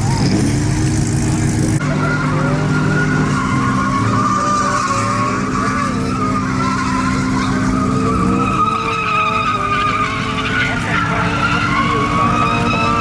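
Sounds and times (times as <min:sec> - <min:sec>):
truck engine revving high: 0:00.0 - 0:13.0
tyres squealing on pavement: 0:00.0 - 0:13.0.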